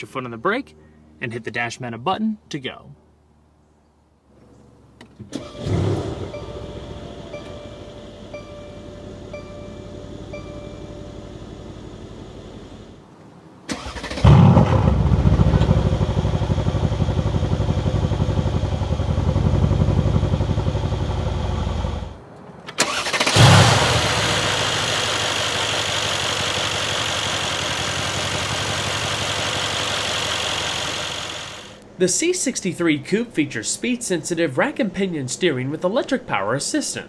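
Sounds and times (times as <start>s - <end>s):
car engine starting and idling: 5.0s - 31.8s.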